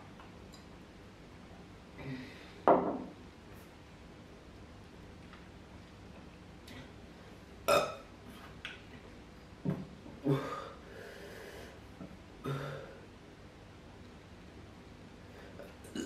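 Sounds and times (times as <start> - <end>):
man burping: 7.7 - 8.0, 15.6 - 16.0.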